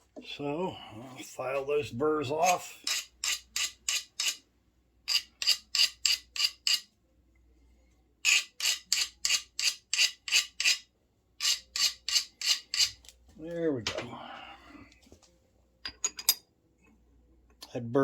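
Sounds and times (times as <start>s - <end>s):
hand file rasping on steel bar: 2.8s - 4.4s, 5.1s - 6.8s, 8.3s - 10.8s, 11.4s - 13.0s.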